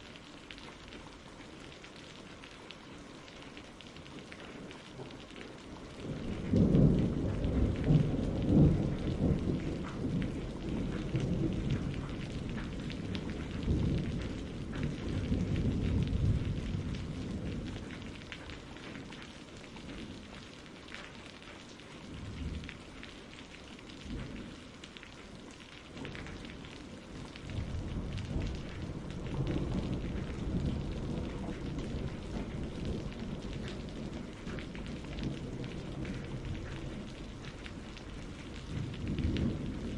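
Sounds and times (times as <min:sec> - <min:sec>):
steady rain: 0:00.0 - 0:39.9
rolling thunder: 0:06.0 - 0:18.2, 0:27.3 - 0:39.9.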